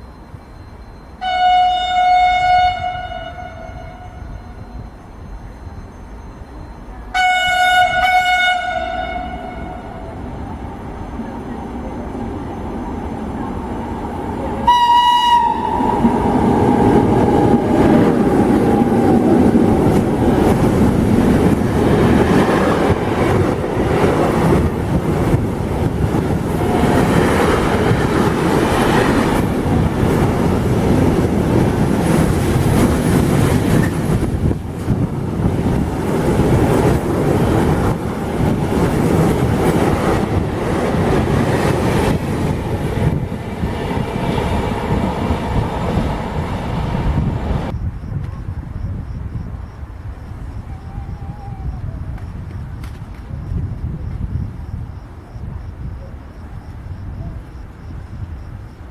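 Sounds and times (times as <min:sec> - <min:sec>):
train rumbling past: 0:00.0 - 0:58.9
train horn blast: 0:01.2 - 0:04.6, 0:07.1 - 0:10.2, 0:14.6 - 0:16.2
wheels clattering on rail joints: 0:15.9 - 0:47.3.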